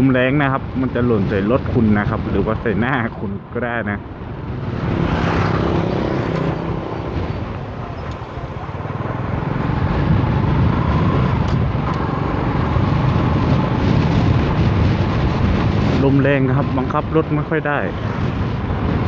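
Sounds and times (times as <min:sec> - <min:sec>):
motorcycle engine and road rumble: 0:00.0 - 0:19.0
strong wind: 0:00.0 - 0:19.0.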